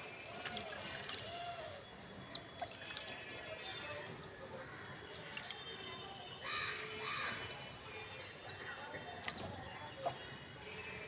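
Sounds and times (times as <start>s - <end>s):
water trickling: 0.0s - 6.2s
birds splashing water: 0.0s - 7.4s
sparrows chirping: 0.2s - 3.8s.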